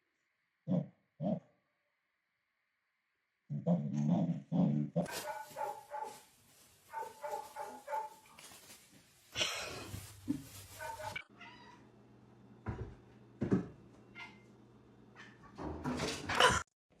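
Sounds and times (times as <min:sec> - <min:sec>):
cat meowing: 0:11.1 - 0:11.8.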